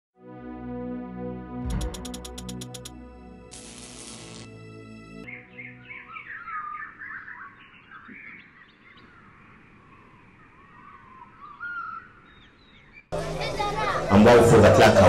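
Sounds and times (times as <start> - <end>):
small birds chirping: 5.2 - 14.1.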